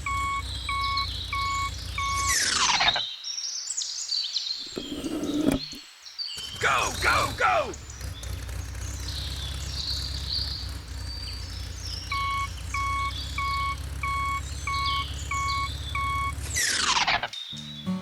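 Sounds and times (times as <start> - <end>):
short beeps: 0.0 - 2.4, 12.1 - 16.4
birds chirping: 0.0 - 3.3, 3.9 - 18.0.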